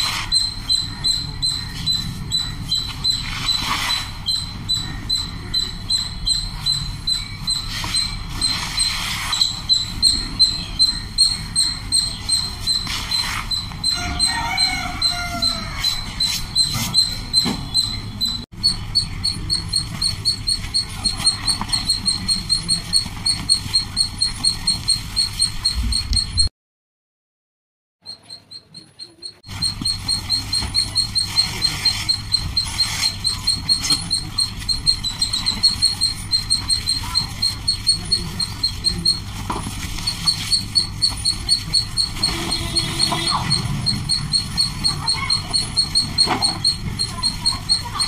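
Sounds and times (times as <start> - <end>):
bird chirping: 0.0 - 26.5, 28.0 - 39.3.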